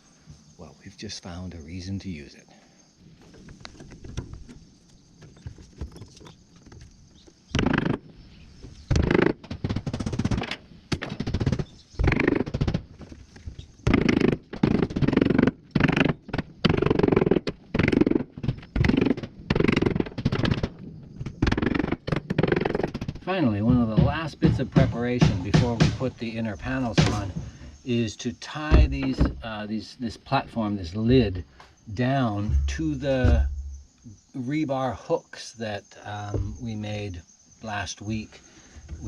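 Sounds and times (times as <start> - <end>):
hammering quick blows: 23.6 - 27.8.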